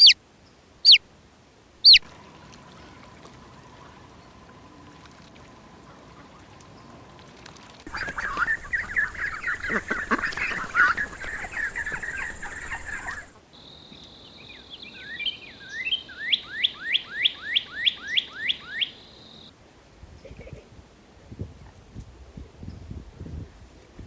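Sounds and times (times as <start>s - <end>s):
bird giving quick rising notes: 1.8s - 2.0s
birds chattering: 1.8s - 2.0s, 7.9s - 13.4s.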